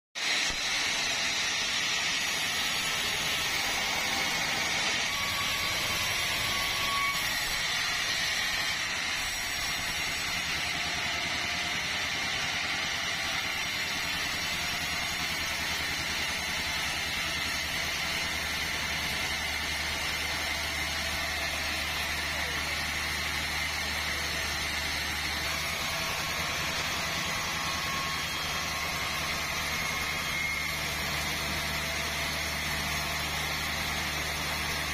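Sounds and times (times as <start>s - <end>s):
sawmill machinery whining: 0.2s - 34.9s.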